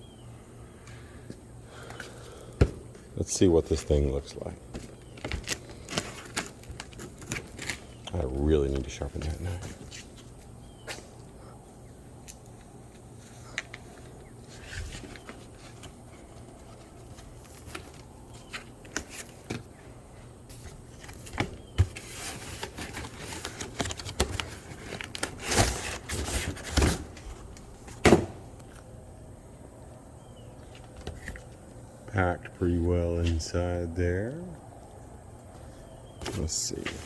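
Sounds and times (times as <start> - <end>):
packing rustling: 4.7 - 8.1, 20.5 - 28.5.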